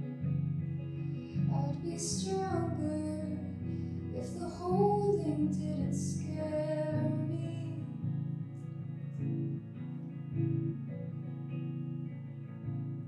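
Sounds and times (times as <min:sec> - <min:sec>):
guitar low sustained notes: 0:00.0 - 0:13.0
person singing slow song: 0:01.1 - 0:08.2.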